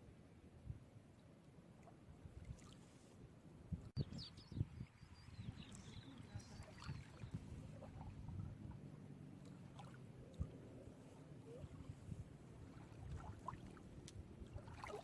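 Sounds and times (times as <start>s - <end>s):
small waves lapping at shore: 1.8s - 3.5s, 4.9s - 15.0s.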